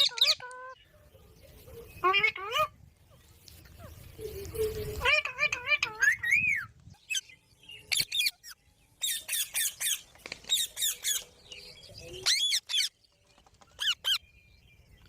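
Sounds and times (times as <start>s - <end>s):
parrot squawking: 0.0s - 0.8s, 2.0s - 2.7s, 5.0s - 6.7s.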